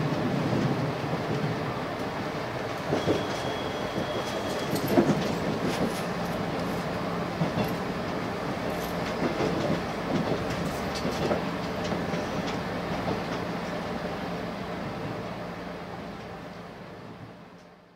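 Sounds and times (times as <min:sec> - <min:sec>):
train running rumble: 0:00.0 - 0:17.9
wheels clacking over rail joints: 0:02.6 - 0:13.8.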